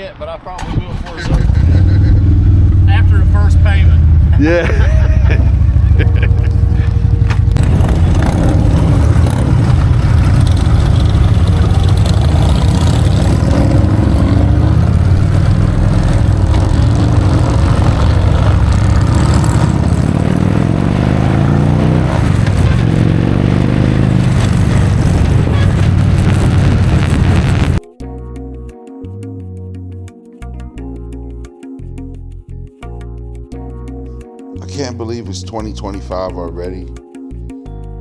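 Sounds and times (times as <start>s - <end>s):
motorcycle engines revving: 1.2s - 27.8s.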